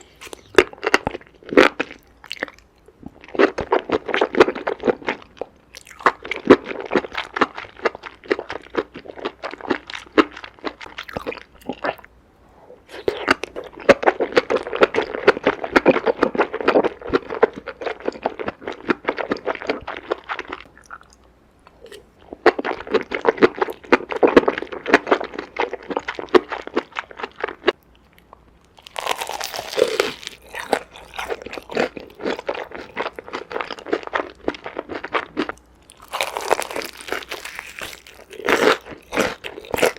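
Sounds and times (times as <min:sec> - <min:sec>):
crunchy chewing and biting: 0:28.7 - 0:39.9.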